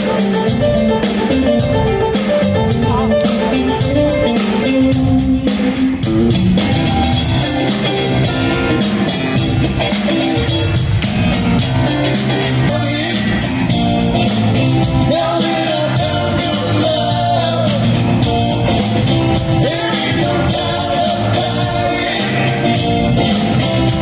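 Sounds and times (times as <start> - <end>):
electric guitar lines: 0.0 - 15.1
bass: 0.0 - 24.0
drum kit beat: 0.0 - 24.0.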